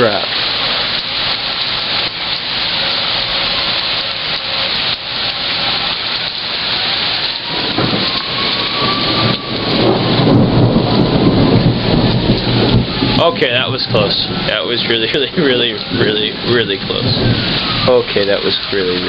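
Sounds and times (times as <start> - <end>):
heavy rain and wind: 0.0 - 19.0
low thunder rumble: 5.7 - 18.8.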